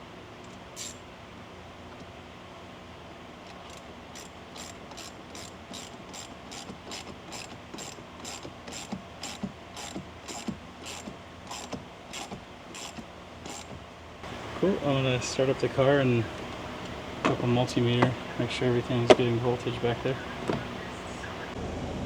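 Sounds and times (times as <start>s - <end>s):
ratchet clicking: 0.4s - 1.0s, 3.4s - 14.6s.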